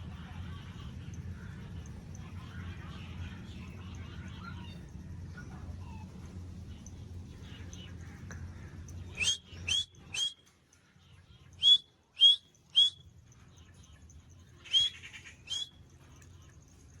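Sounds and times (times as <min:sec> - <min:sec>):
parrot calls: 0:09.2 - 0:10.3, 0:11.6 - 0:13.0, 0:14.7 - 0:15.7.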